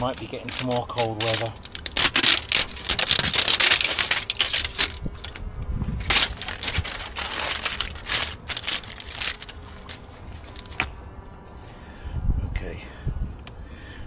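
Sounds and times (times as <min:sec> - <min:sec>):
tape peeling and crumpling: 0:00.0 - 0:11.0.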